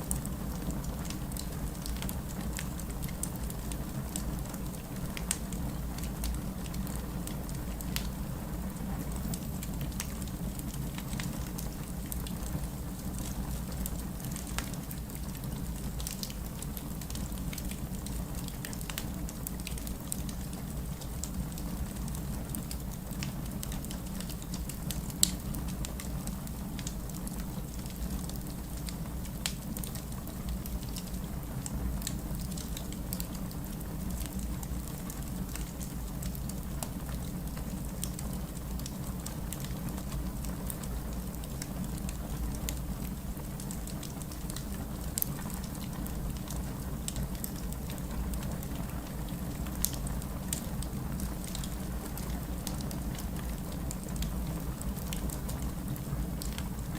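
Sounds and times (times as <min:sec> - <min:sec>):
distant city rain: 0:00.0 - 0:56.9
wood fire crackling and popping: 0:00.0 - 0:56.9.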